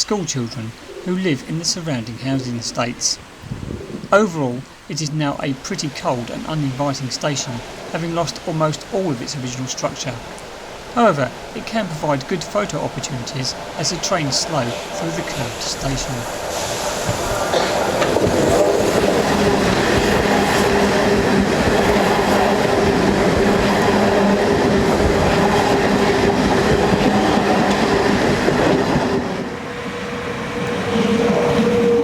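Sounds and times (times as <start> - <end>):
higher train hum: 0.0 - 32.0
low electric train hum: 0.0 - 32.0
train wheels on rails: 5.8 - 32.0.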